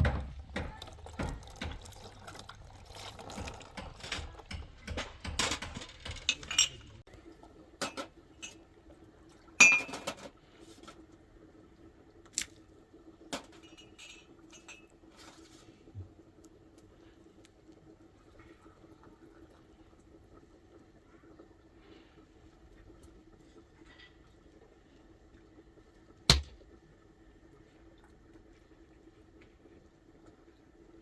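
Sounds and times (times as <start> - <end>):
dishes clinking and knocking: 0.0 - 2.4, 3.2 - 7.0, 9.6 - 10.3
faint steady hum: 6.2 - 31.0.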